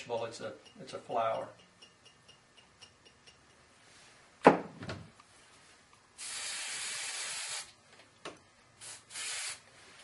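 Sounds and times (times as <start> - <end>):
aerosol can spraying: 6.2 - 7.7, 8.8 - 9.6.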